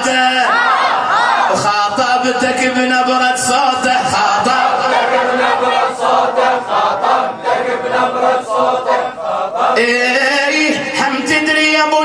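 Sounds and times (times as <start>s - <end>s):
reciter singing verses: 0.2s - 11.4s
voices chanting in unison: 0.5s - 1.6s, 4.0s - 10.0s.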